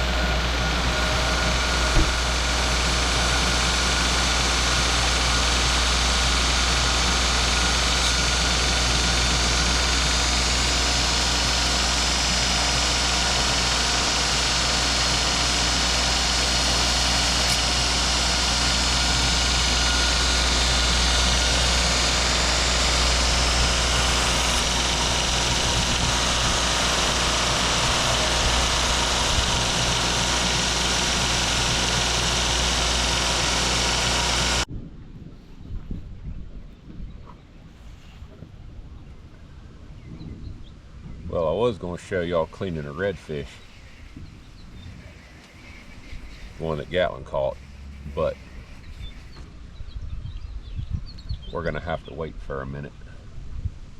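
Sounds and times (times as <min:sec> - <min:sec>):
knife sharpener grinding: 0:00.0 - 0:34.7, 0:42.2 - 0:49.4.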